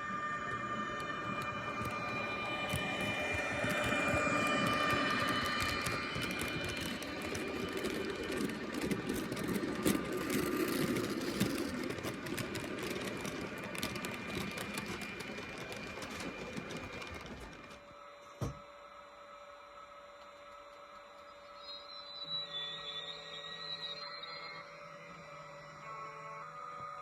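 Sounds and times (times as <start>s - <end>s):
model train clattering on track: 0.6s - 18.6s.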